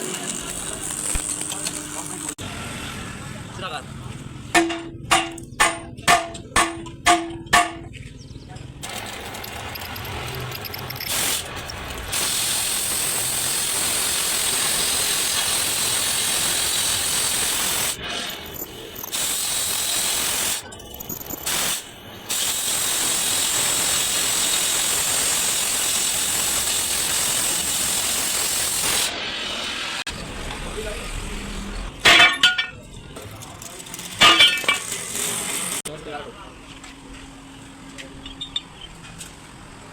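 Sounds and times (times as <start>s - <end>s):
workshop tool hissing: 8.9s - 30.1s.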